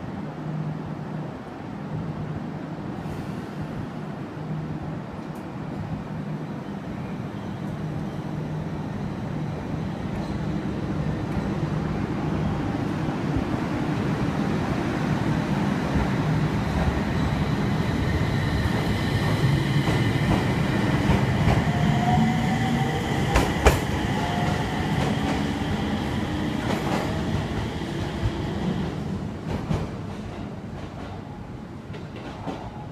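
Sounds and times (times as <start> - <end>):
train wheels rumbling on track: 7.6 - 32.9.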